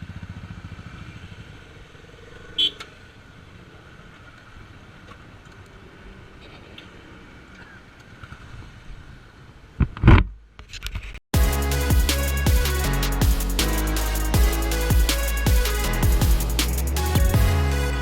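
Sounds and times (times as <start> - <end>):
electronic music with drums: 11.4 - 18.0
loud rushing burst: 11.4 - 18.0.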